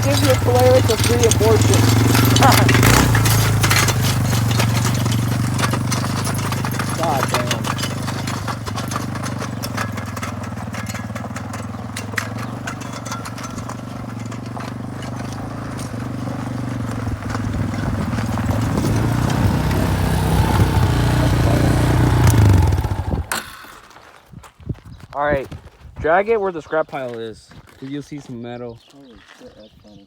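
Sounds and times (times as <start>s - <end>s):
light clicks and clatters: 0.0s - 20.7s
engine running: 0.0s - 23.8s.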